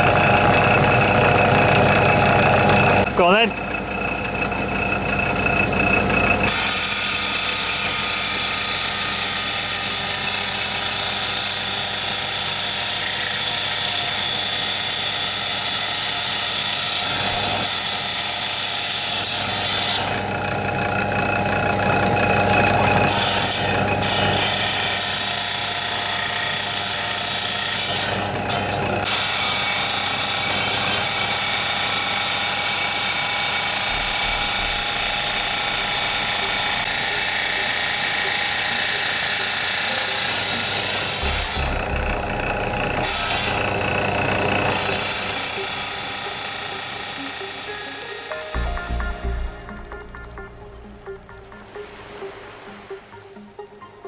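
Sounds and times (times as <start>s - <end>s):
small power tool whirring: 23.1s - 48.3s.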